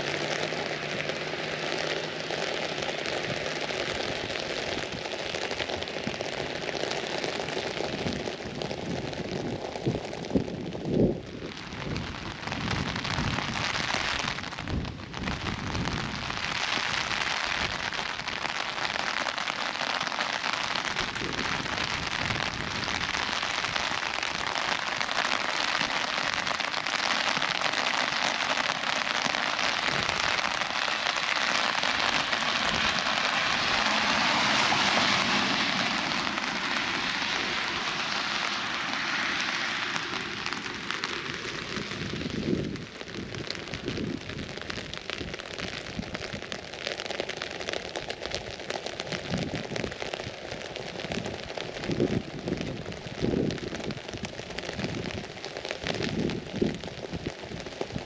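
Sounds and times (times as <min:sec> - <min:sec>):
rain on an umbrella: 0:00.0 - 0:58.0.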